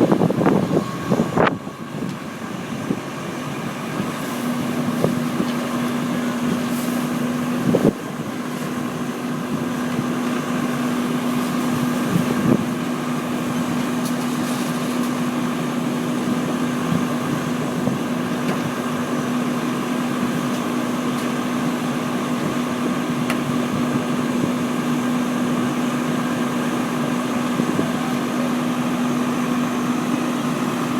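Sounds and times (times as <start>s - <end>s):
engine idling: 0.0s - 30.9s.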